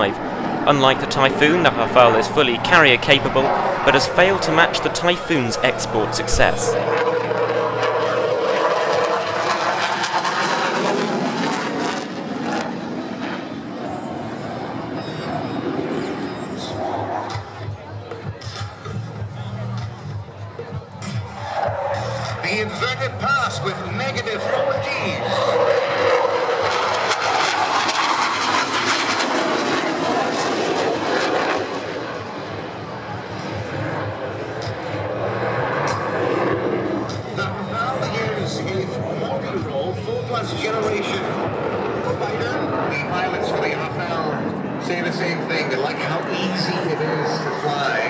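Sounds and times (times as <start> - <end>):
fighter jet roaring: 0.0 - 15.3
jet engines roaring: 0.0 - 17.7, 24.2 - 39.6, 40.4 - 48.0.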